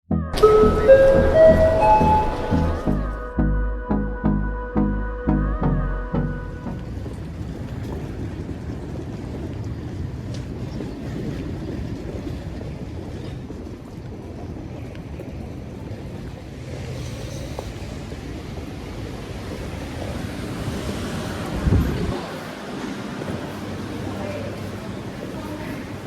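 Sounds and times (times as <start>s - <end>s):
low rumbling background noise: 5.1s - 26.0s.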